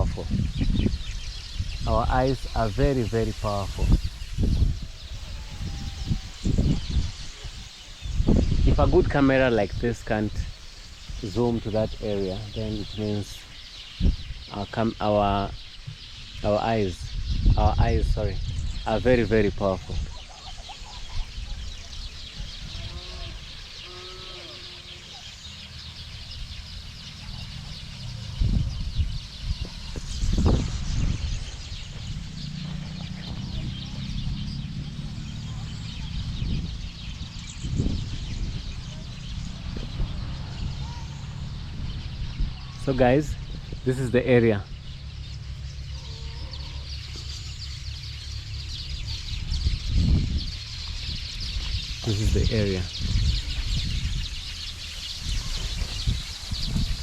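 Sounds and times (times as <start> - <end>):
lower-pitched bird call: 0.0 - 8.6, 19.8 - 57.0
small birds chirping: 0.0 - 57.0
low rumble: 25.8 - 57.0.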